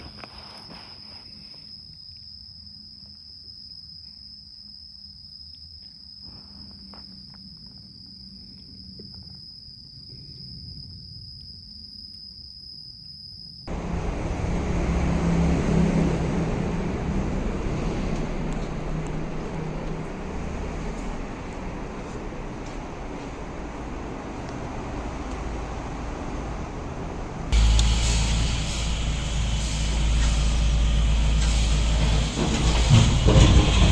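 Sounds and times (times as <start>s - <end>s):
insect droning: 0.0s - 13.9s
motor scooter engine: 13.7s - 21.0s.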